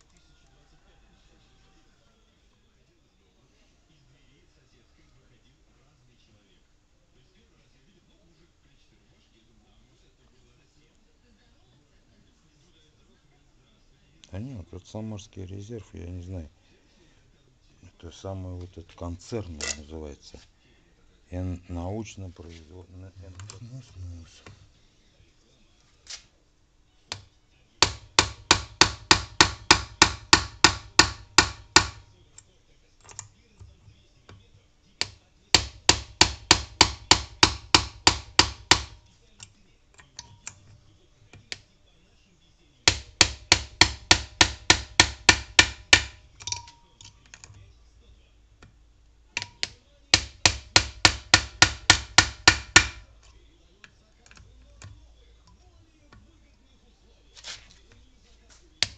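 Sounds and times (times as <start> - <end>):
metallic hammer taps: 42.9 - 47.6, 49.4 - 56.3.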